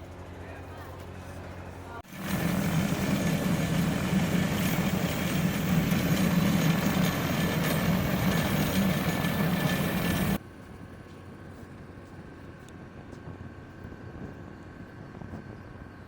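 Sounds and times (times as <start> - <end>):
engine running: 0.0 - 10.4.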